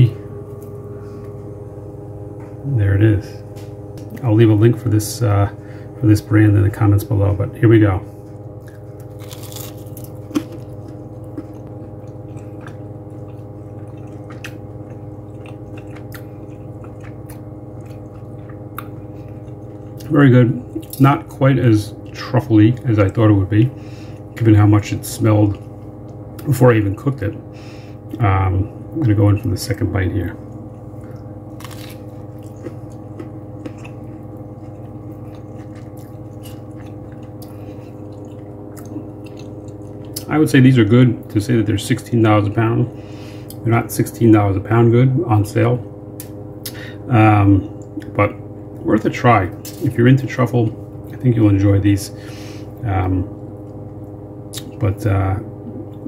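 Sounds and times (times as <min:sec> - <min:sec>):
low hum with steady tones: 0:00.0 - 0:56.0
person chewing: 0:08.5 - 0:20.1, 0:30.8 - 0:40.3
chewing clicks: 0:08.6 - 0:20.1, 0:31.0 - 0:40.3.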